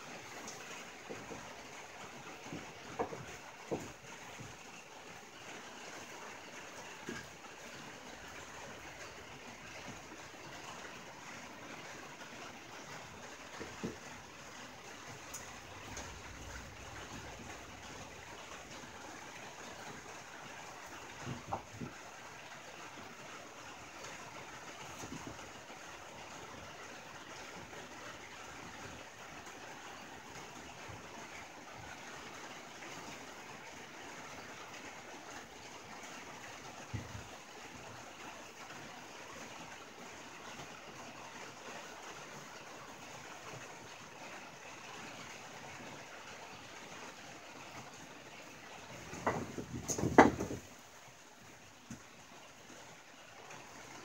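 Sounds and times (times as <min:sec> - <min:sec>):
rain on a tin roof: 0:00.0 - 0:54.0
sharp knocks and clatters: 0:02.4 - 0:04.6, 0:49.0 - 0:50.8.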